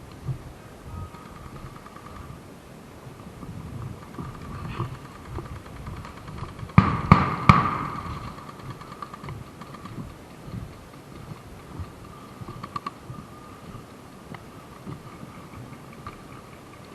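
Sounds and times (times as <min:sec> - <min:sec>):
faint steady high tone: 0:00.0 - 0:02.4.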